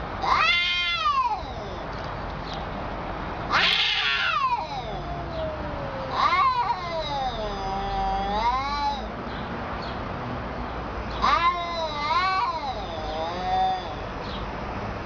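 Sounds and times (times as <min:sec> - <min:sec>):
cat yowling: 0:00.2 - 0:01.9, 0:03.5 - 0:09.1, 0:11.2 - 0:14.1.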